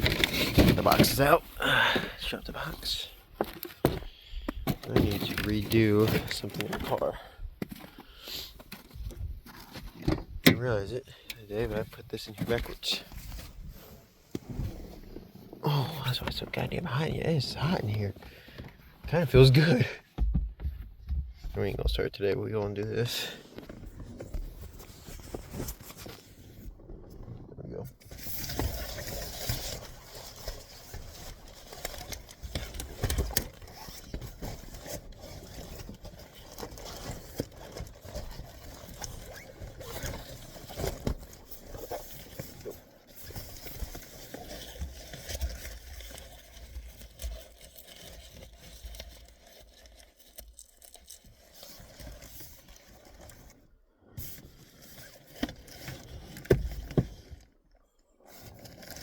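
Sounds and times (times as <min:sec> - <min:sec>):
fabric rustling and scraping: 0:12.6 - 0:16.5, 0:23.5 - 0:26.8.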